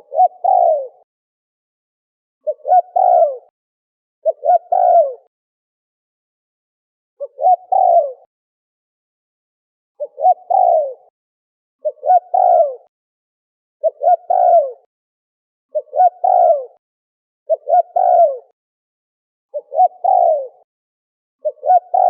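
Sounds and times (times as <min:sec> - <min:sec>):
dove cooing: 0:00.0 - 0:01.1, 0:02.4 - 0:03.5, 0:04.2 - 0:05.3, 0:07.2 - 0:08.3, 0:10.0 - 0:11.1, 0:11.8 - 0:12.9, 0:13.8 - 0:14.9, 0:15.7 - 0:16.8, 0:17.5 - 0:18.6, 0:19.5 - 0:20.7, 0:21.4 - 0:22.0.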